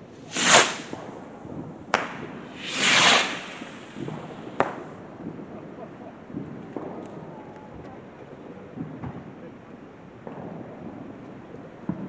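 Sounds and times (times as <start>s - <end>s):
fireworks cracking: 0.0s - 5.5s
firework hissing burst: 0.1s - 1.2s, 2.0s - 5.0s.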